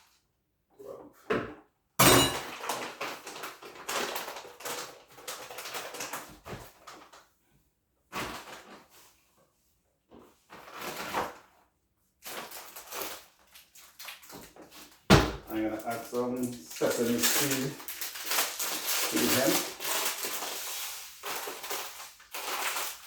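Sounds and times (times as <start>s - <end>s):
utensils scraping and rustling: 16.5s - 23.0s.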